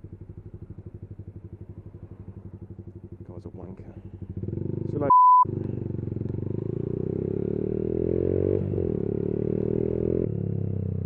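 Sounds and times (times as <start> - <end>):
motorcycle engine accelerating: 0.0 - 11.0
short loud bleep: 5.1 - 5.5.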